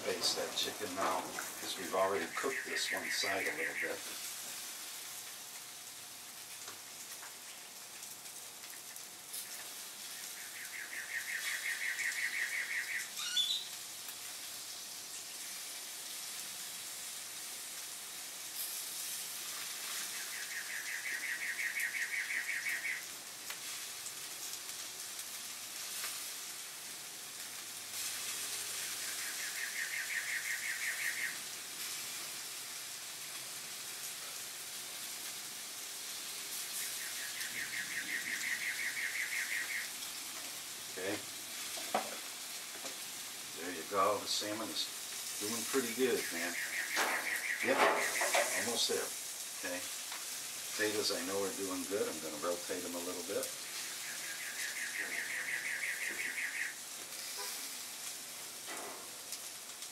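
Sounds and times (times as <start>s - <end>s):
chicken sizzling on a grill: 0.0s - 59.9s
bird rapid trill: 10.2s - 13.7s, 20.1s - 23.1s, 29.0s - 31.4s, 36.8s - 40.0s, 45.9s - 48.8s, 53.7s - 56.8s.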